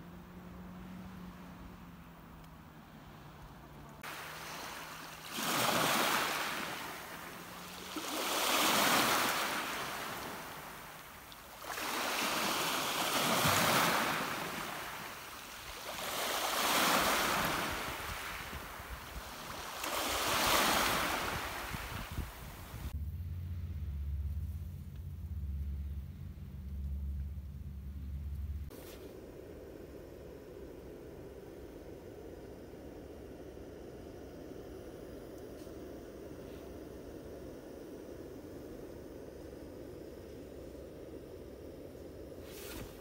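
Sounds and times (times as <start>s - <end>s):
sea waves washing onto beach: 4.0s - 22.9s.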